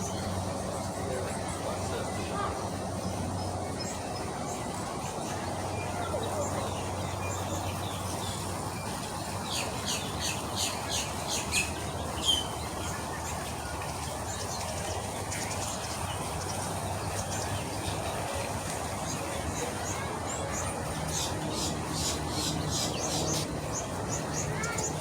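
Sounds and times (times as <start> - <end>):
bird chirping: 6.1 - 18.4.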